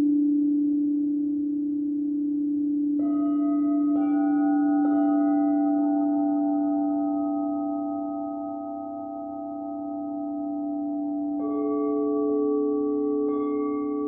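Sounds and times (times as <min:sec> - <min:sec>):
low singing bowl tone: 0:00.0 - 0:14.0
higher singing bowls ringing: 0:03.0 - 0:14.0.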